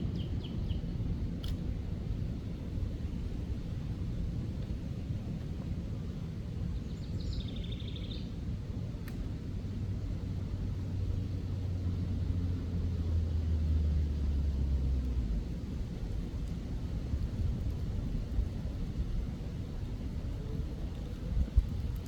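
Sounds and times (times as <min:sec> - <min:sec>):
distant engine drone: 0:00.0 - 0:22.0
low outdoor rumble: 0:00.0 - 0:22.0
faint click: 0:01.4 - 0:01.6, 0:09.0 - 0:09.3.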